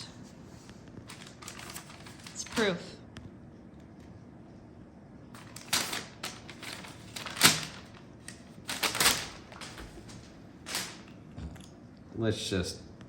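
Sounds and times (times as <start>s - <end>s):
rustling and clatter of handled things: 0.8s - 2.7s, 5.4s - 11.6s.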